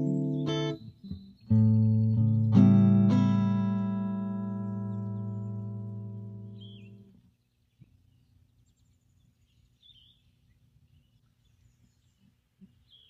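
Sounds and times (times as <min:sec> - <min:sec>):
guitar note: 0:00.0 - 0:00.9, 0:01.5 - 0:07.1
low steady hum: 0:01.6 - 0:12.2.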